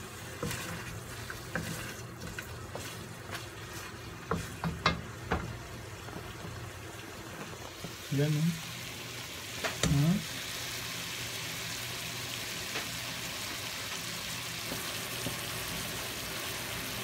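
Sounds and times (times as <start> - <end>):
meat sizzling in a pan: 0.0 - 17.0.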